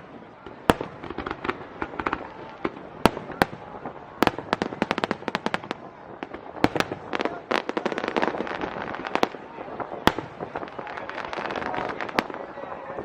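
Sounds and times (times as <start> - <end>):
firework bangs: 0.0 - 13.0
fireworks crackling: 0.0 - 13.0.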